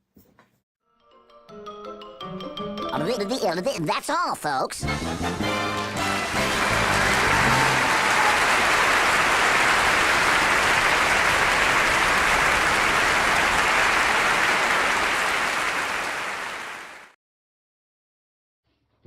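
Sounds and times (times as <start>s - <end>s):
crowd applause: 6.0s - 17.2s.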